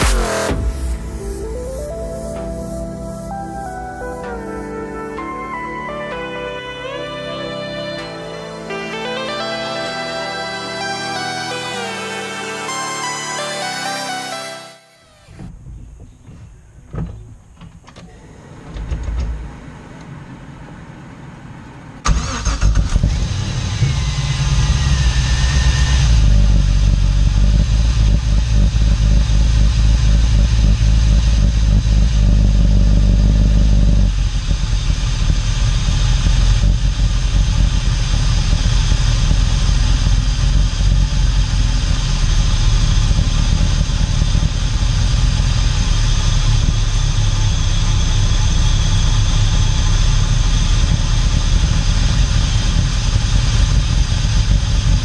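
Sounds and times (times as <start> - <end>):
engine starting and idling: 17.9 - 55.0.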